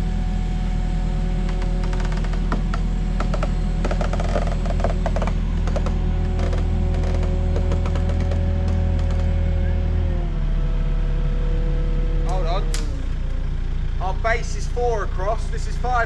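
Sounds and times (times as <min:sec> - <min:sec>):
forklift engine running: 0:00.0 - 0:16.0
knocks and rattles: 0:01.4 - 0:09.6.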